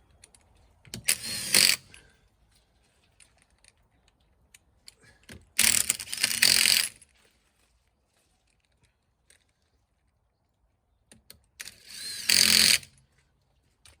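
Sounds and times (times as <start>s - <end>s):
impact wrench rattling: 1.0s - 1.9s, 5.6s - 7.0s, 11.9s - 12.8s.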